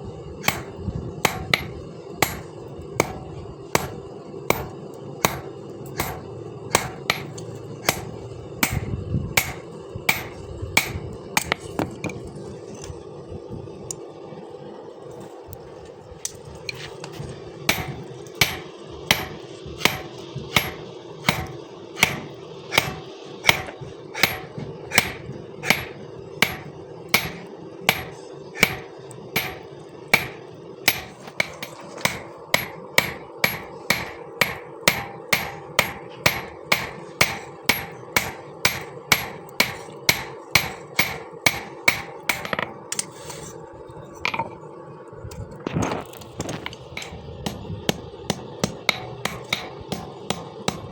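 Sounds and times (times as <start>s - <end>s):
steady hum: 0.0s - 50.9s
hammer blows on metal: 0.4s - 11.7s, 17.7s - 43.1s, 47.0s - 50.9s.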